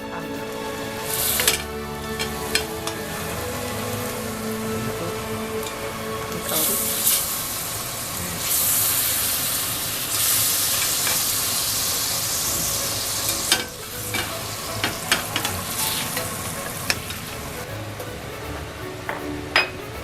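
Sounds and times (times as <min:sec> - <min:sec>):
food sizzling in a frying pan: 0:06.5 - 0:17.4.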